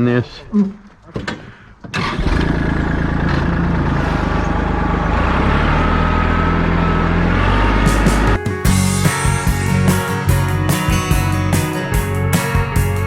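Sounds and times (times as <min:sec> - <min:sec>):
vehicle engine running: 0:02.3 - 0:10.7.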